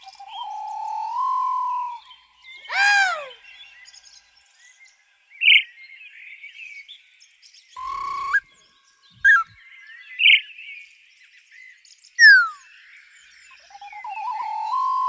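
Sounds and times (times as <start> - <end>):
bird whistles: 0.0 - 3.4, 7.8 - 8.5, 9.2 - 9.6, 12.2 - 12.7, 13.6 - 15.0
faint bird twittering: 0.0 - 4.1, 7.8 - 10.7, 12.2 - 15.0
loud bird chirps: 0.0 - 4.8, 7.8 - 10.8, 12.2 - 15.0.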